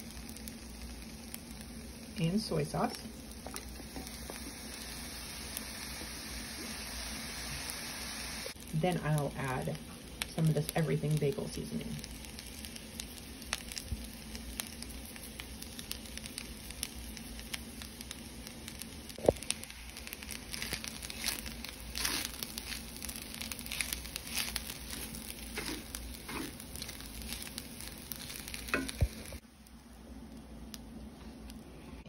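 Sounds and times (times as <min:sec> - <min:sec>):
fried rice sizzling in skillet: 0:00.0 - 0:30.9
utensil scraping pan: 0:23.8 - 0:26.6.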